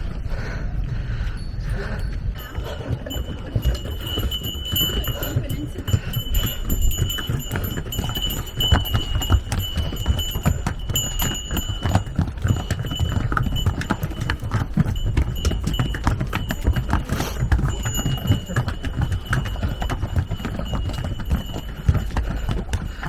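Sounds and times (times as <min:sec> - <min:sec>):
hooves clip-clopping on stone: 0:00.0 - 0:23.0
high steady ringing tone: 0:01.2 - 0:23.0.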